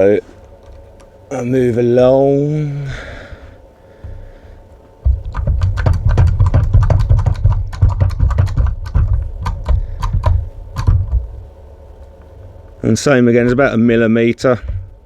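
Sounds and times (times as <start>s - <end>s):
hand crimping tool clicks and knocks: 5.0s - 11.3s.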